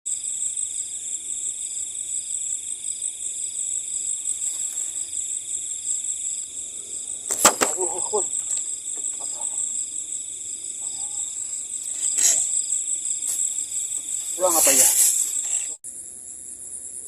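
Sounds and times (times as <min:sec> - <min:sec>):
crickets and insects chirring: 0:00.1 - 0:17.0
sharp clicks or knocks: 0:07.3 - 0:07.8.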